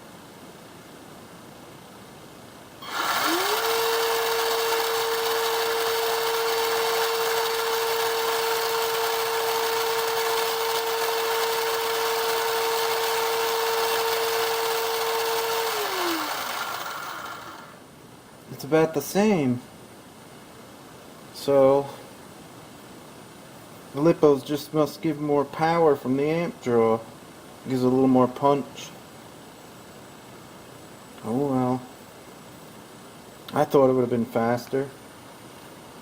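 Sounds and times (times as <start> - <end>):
electric motor whine: 2.8 - 17.8.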